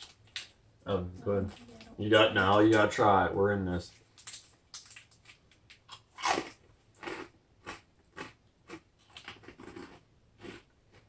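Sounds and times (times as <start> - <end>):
crunchy snack being chewed: 4.2 - 11.0.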